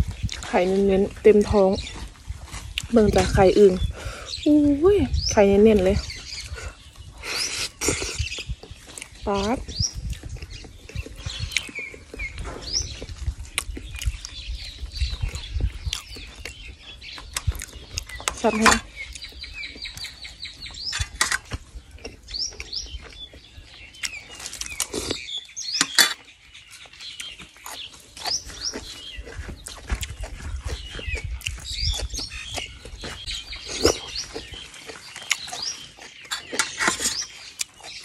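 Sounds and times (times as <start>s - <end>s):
small birds chirping: 0.0s - 38.0s
chewing and lip smacks: 1.4s - 3.2s, 5.7s - 38.0s.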